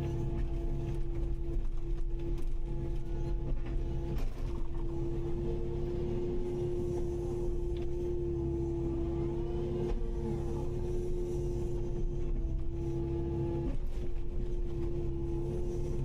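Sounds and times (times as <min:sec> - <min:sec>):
excavator diesel engine whining: 0:00.0 - 0:16.0.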